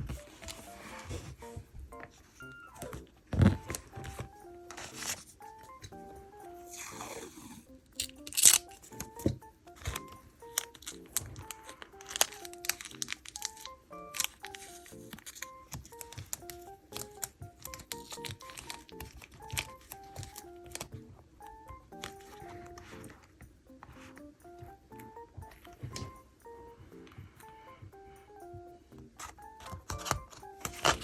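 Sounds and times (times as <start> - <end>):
paper rustling and tearing: 0.0 - 1.6, 2.3 - 5.3, 9.8 - 20.9
soft background music: 0.0 - 31.0
sharp clicks and taps: 7.9 - 31.0.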